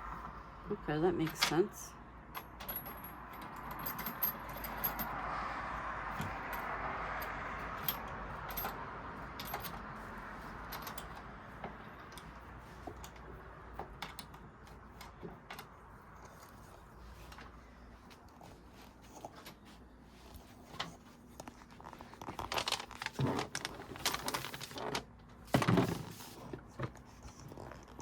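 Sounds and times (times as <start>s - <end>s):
hardware clicks and clinks: 2.3s - 5.2s, 6.1s - 9.8s, 10.4s - 16.6s.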